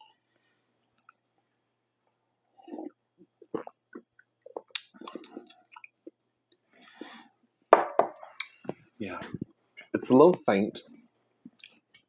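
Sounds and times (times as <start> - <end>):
mouth chewing pizza: 2.6 - 6.2.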